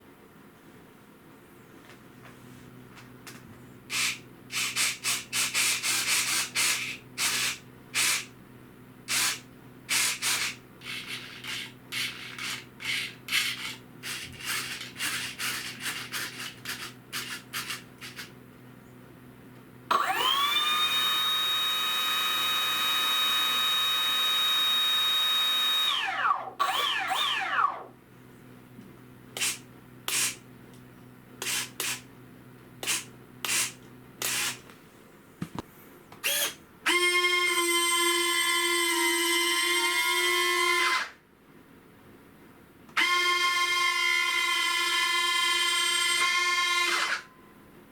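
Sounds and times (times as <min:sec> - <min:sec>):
small electric motor whining: 0:03.9 - 0:08.3, 0:09.1 - 0:18.3, 0:19.9 - 0:27.9, 0:43.0 - 0:47.3
parts rubbing and rustling: 0:10.3 - 0:18.3.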